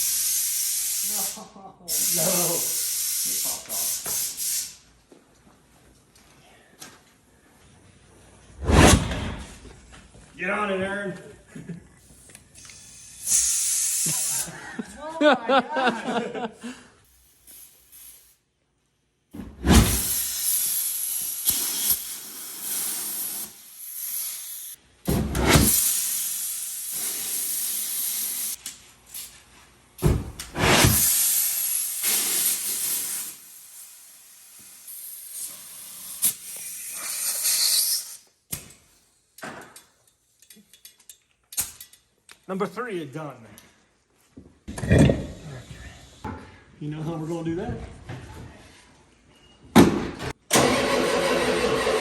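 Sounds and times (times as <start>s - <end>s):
pressurised gas hissing: 0.0s - 4.8s, 12.6s - 14.5s, 19.6s - 24.8s, 30.0s - 38.2s
thump: 25.1s - 25.8s, 30.0s - 31.0s, 49.7s - 50.3s.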